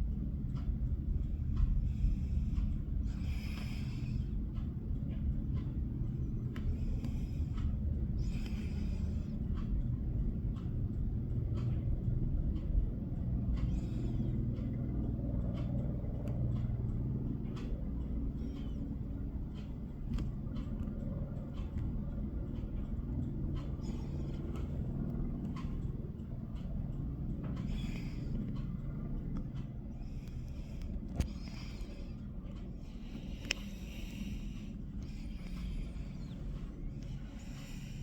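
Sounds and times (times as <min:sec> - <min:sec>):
distant helicopter rumble: 0:00.0 - 0:38.0.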